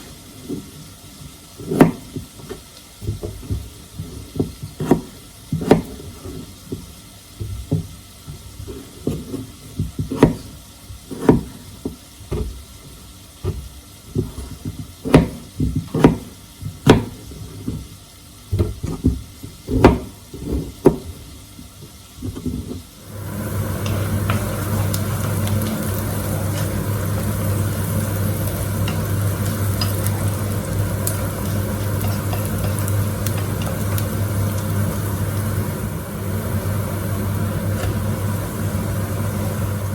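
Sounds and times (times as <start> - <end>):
kitchen appliance humming: 0.0 - 39.9
utensils and dishes clicking: 28.4 - 34.7.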